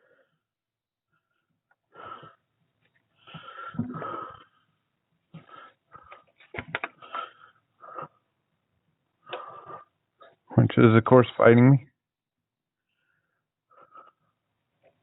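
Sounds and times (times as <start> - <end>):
person breathing hard and straining: 1.1 - 2.5, 3.1 - 8.4, 9.2 - 10.4, 12.9 - 14.5.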